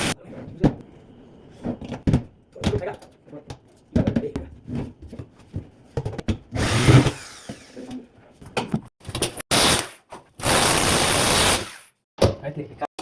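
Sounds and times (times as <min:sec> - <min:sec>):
power drill running: 0:06.6 - 0:07.9, 0:09.5 - 0:11.9.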